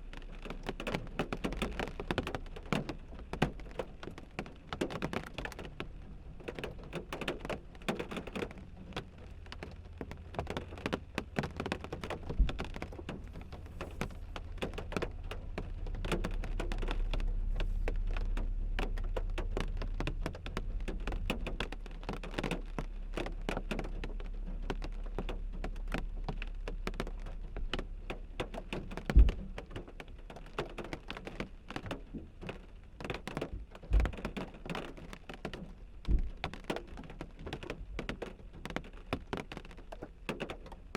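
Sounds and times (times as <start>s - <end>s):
rain tapping on windshield: 0.0s - 40.9s
low rumble: 11.8s - 23.5s
heavier knocks: 12.2s - 14.2s.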